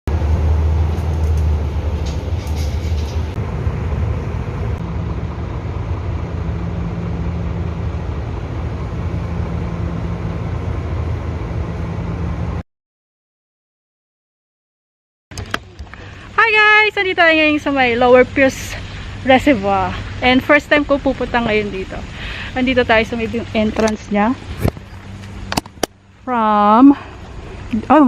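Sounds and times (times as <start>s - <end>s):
low vehicle rumble: 0.1s - 12.6s, 15.3s - 28.0s.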